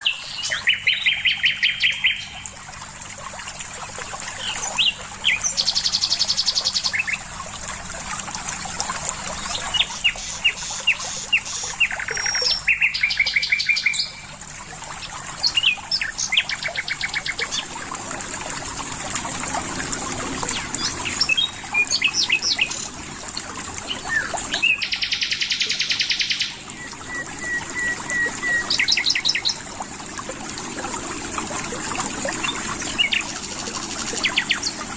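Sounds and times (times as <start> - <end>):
songbirds trilling: 0.0 - 2.5, 9.3 - 14.4, 15.0 - 17.8, 20.4 - 23.0, 23.7 - 29.7, 32.3 - 34.9
running water: 0.0 - 34.9.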